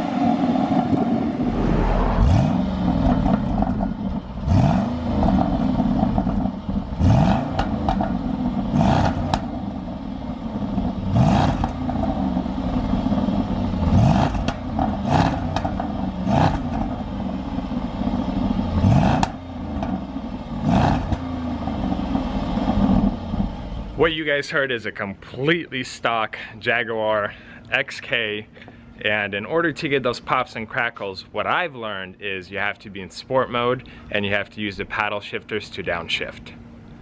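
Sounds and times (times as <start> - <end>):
car engine revving: 0.8 - 9.8, 10.5 - 23.4
exhaust cracks: 0.8 - 9.8, 10.6 - 17.3.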